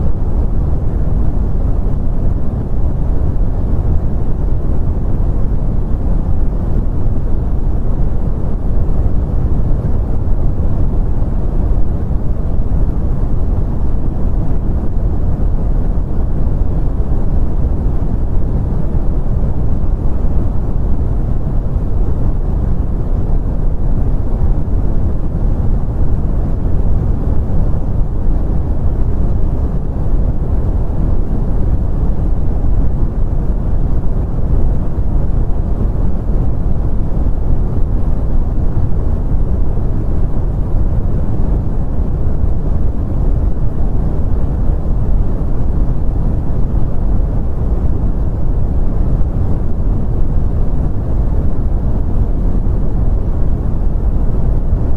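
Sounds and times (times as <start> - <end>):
brown noise: 0.0 - 54.9.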